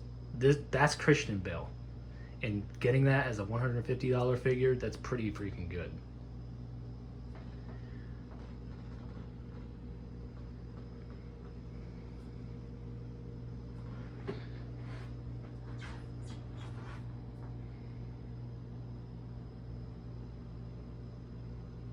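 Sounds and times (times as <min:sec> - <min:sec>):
low electrical hum: 0:00.0 - 0:21.9
faint rustles and clicks: 0:07.2 - 0:12.4, 0:13.6 - 0:17.6.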